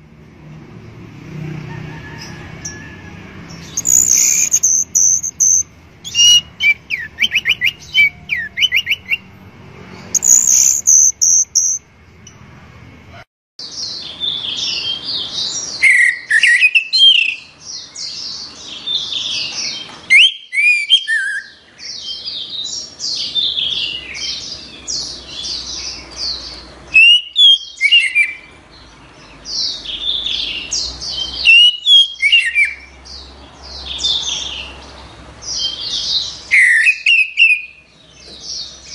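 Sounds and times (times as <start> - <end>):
thrush singing whistled phrases: 3.7 - 9.3, 10.2 - 11.8, 20.1 - 21.6, 26.9 - 28.5, 36.4 - 37.8.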